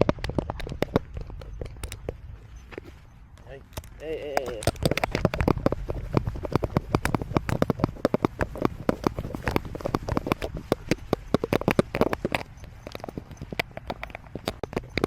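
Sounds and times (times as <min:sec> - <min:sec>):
rapid clicking and tapping: 0:00.0 - 0:02.9, 0:03.7 - 0:15.0.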